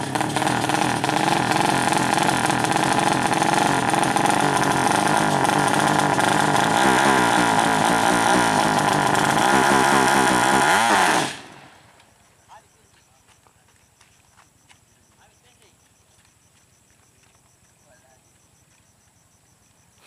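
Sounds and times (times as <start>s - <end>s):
motorcycle engine revving: 0.0s - 12.5s.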